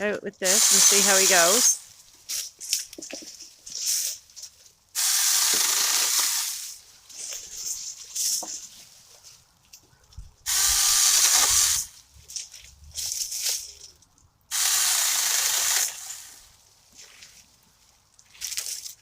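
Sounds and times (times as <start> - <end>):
electric chainsaw cutting branches: 0.4 - 1.8, 5.0 - 6.8, 10.5 - 12.0, 14.5 - 16.5.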